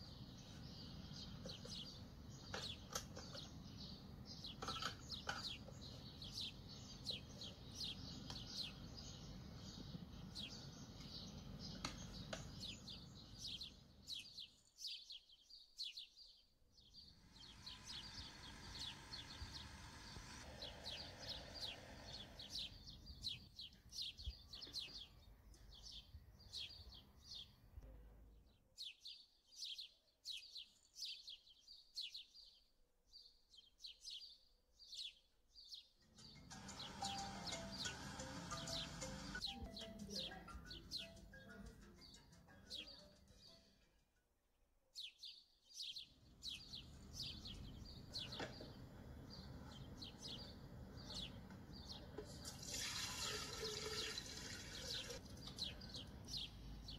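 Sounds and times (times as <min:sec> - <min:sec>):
small bird chirping: 0:00.0 - 0:27.8, 0:28.6 - 0:43.8, 0:45.0 - 0:56.9
low motor hum: 0:17.2 - 0:22.5.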